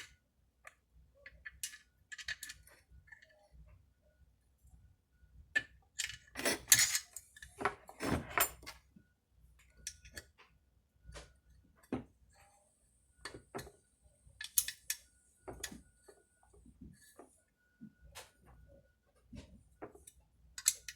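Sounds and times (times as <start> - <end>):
metal parts and tools clinking: 6.0 - 8.8, 20.6 - 20.9.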